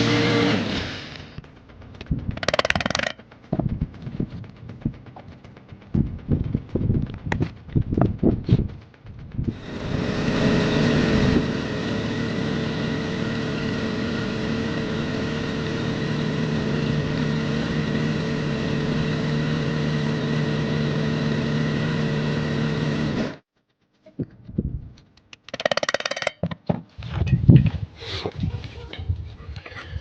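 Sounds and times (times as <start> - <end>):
motor running steadily: 0.0 - 23.5.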